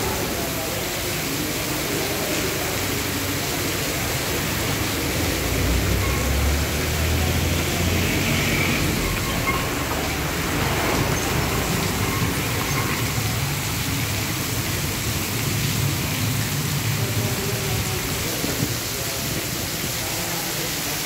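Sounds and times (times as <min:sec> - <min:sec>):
heavy rain on road and foliage: 0:00.0 - 0:21.0
passing vehicle engine rumble: 0:04.3 - 0:17.1.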